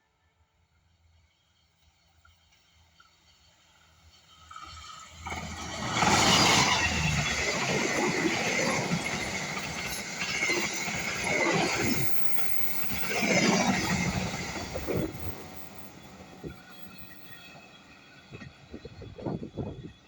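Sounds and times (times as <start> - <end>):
train wheels clattering over rails: 4.4 - 19.8.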